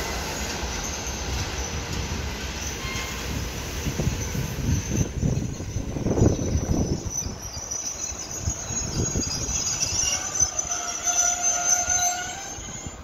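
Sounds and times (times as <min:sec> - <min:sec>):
brakes squealing: 0:03.9 - 0:13.0.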